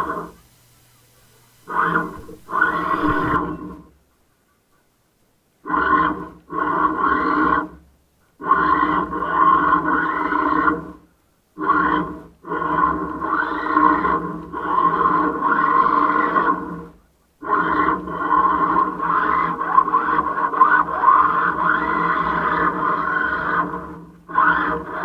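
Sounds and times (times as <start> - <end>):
remote-control toy car running: 0.0 - 3.8.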